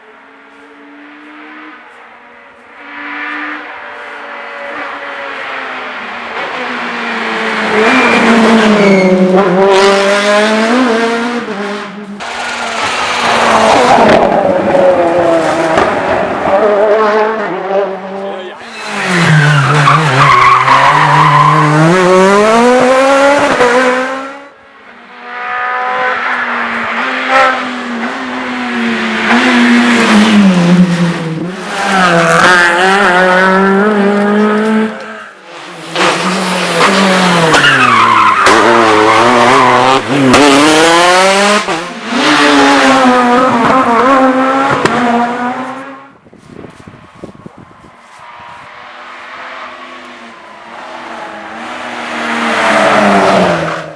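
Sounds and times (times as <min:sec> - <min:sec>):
rally car engines revving: 0:00.0 - 0:53.9
tyre squeal: 0:07.8 - 0:09.3, 0:18.6 - 0:22.0.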